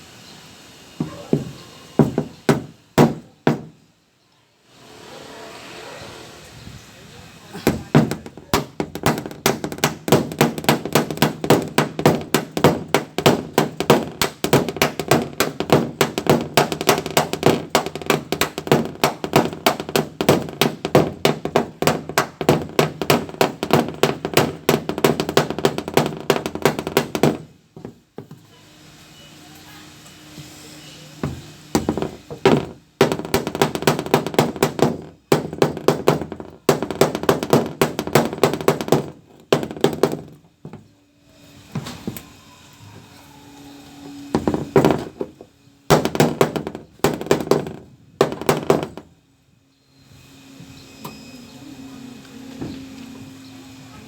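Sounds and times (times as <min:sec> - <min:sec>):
hammer on steel panel: 0:01.0 - 0:03.8, 0:07.6 - 0:28.0, 0:31.2 - 0:40.8, 0:45.9 - 0:49.1.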